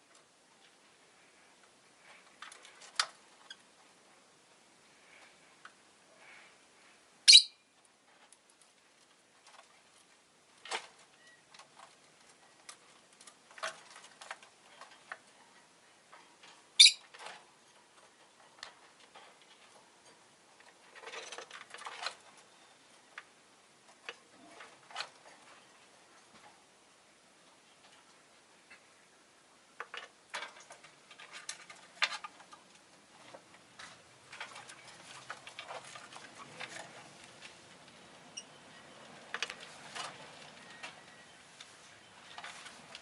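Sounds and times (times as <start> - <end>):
bird chirping: 7.3 - 7.7, 16.8 - 17.1, 38.3 - 39.2.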